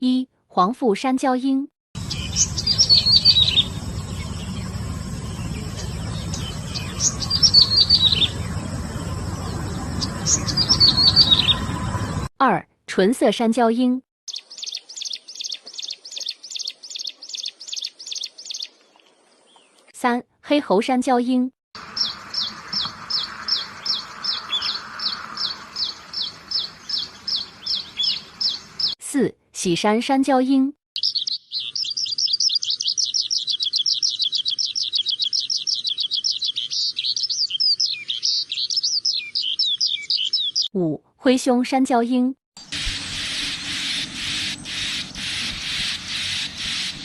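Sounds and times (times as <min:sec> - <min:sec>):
bird singing sharp chirps: 0:02.0 - 0:12.3, 0:14.3 - 0:18.7, 0:21.8 - 0:29.0, 0:31.0 - 0:40.8
bird high whistled notes: 0:02.1 - 0:04.3, 0:09.4 - 0:12.3.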